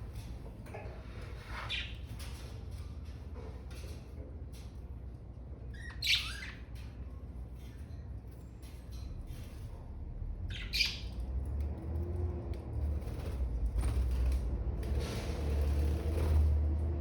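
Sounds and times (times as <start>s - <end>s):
budgerigars chirping and squawking: 1.6s - 2.0s, 5.8s - 6.6s, 10.5s - 11.2s.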